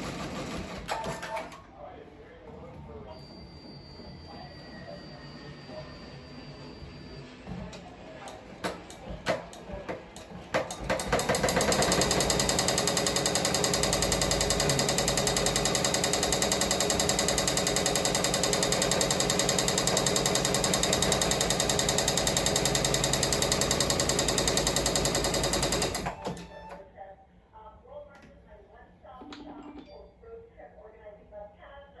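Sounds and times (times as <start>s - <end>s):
embroidery machine stitching: 8.6s - 26.8s.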